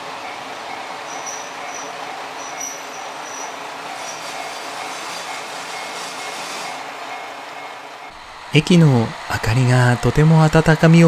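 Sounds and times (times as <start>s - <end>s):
diesel railcar running: 0.0s - 11.0s
faint high squeal: 1.1s - 5.0s.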